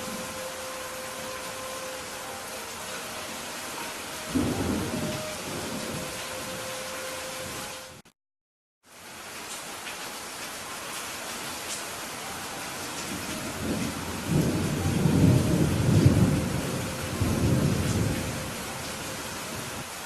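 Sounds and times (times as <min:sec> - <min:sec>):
rain hissing: 0:00.0 - 0:08.1, 0:08.8 - 0:20.0
rolling thunder rumble: 0:04.2 - 0:06.6, 0:13.0 - 0:19.8.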